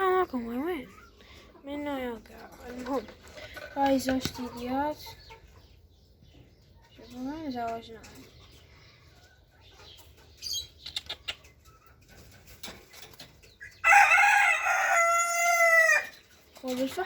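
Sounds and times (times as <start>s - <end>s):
chicken clucking: 0.1s - 17.0s
rooster crowing: 13.8s - 16.1s.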